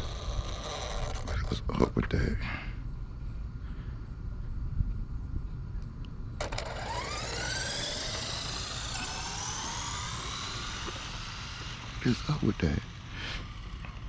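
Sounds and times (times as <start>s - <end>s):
rc car motor whining: 0.0s - 1.7s, 6.4s - 14.0s.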